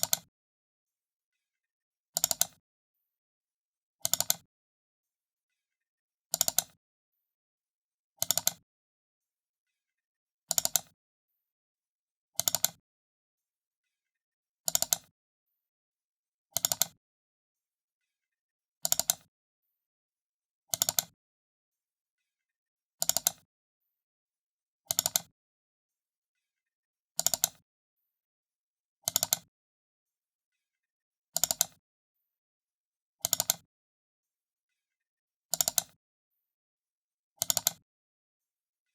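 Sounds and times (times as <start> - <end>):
computer mouse double-clicking: 0.0 - 0.3, 2.2 - 2.6, 4.0 - 4.5, 6.3 - 6.8, 8.2 - 8.6, 10.5 - 11.0, 12.4 - 12.8, 14.7 - 15.1, 16.6 - 17.0, 18.8 - 19.3, 20.7 - 21.2, 23.0 - 23.4, 24.9 - 25.3, 27.2 - 27.6, 29.1 - 29.5, 31.4 - 31.8, 33.2 - 33.7, 35.5 - 36.0, 37.4 - 37.8
computer mouse double clicks: 29.1 - 29.5, 31.4 - 31.8, 33.2 - 33.6, 35.5 - 36.0, 37.4 - 37.8.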